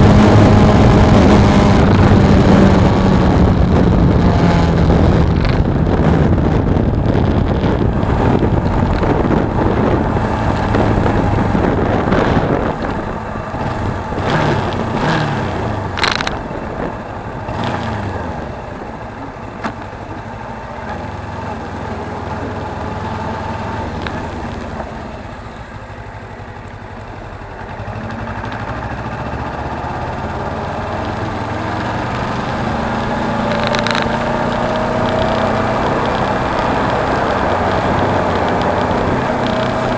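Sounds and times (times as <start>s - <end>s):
wind noise: 0.0s - 25.6s, 28.7s - 39.9s
motorcycle engine running: 0.0s - 39.9s.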